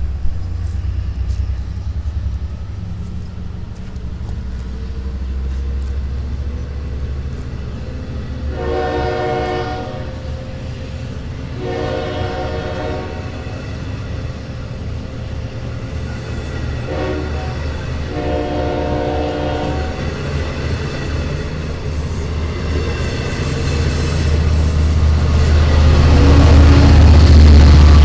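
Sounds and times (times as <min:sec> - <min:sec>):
diesel engine rumble: 0:00.0 - 0:28.0
locomotive air horn blasts: 0:08.3 - 0:10.6, 0:11.5 - 0:13.7, 0:16.8 - 0:20.1, 0:25.9 - 0:27.2.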